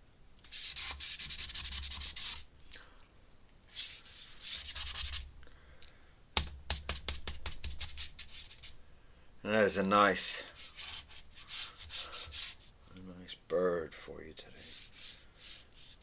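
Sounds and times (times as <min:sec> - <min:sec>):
pen scratching on paper: 0:00.6 - 0:02.4, 0:03.8 - 0:05.2, 0:10.6 - 0:12.7, 0:14.6 - 0:16.0.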